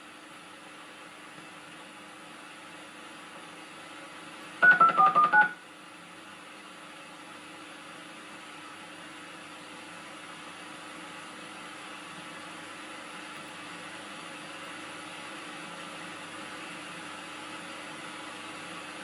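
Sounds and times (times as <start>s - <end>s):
tape hiss and hum: 4.4s - 5.9s
telephone touch-tone beeps: 4.6s - 5.6s.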